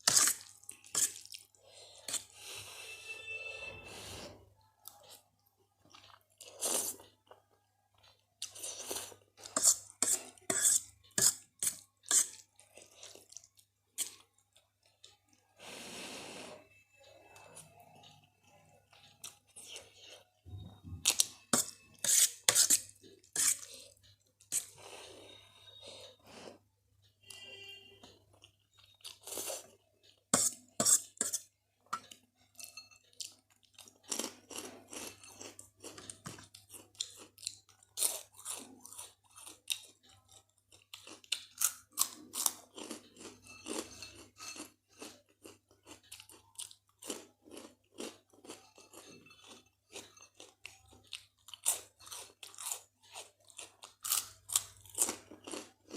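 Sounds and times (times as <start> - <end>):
crunchy chewing: 33.2 - 55.9.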